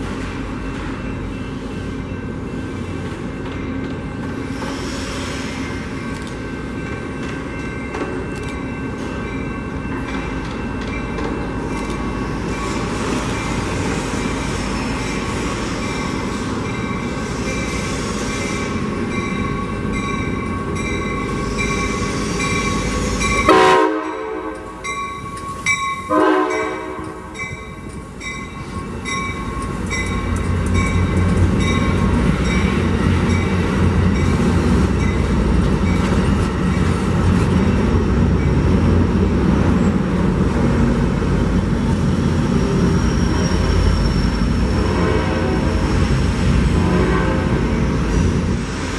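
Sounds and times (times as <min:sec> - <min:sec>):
train wheels on rails: 0:00.0 - 0:48.9
high ringing wheel tones: 0:18.6 - 0:34.4
train horn: 0:23.4 - 0:24.8, 0:26.1 - 0:27.4, 0:44.7 - 0:45.8, 0:46.6 - 0:47.8.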